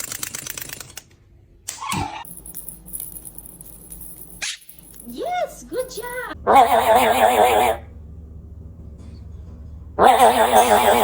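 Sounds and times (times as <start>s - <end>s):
rapid even clicking: 0.0s - 1.2s
parrot call: 6.5s - 7.8s, 10.0s - 11.0s.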